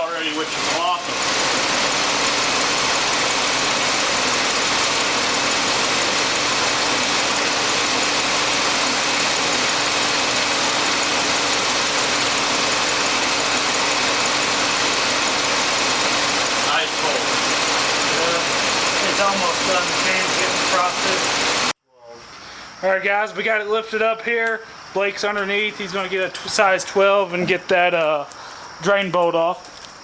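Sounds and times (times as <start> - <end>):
car engine idling: 0.0 - 21.7.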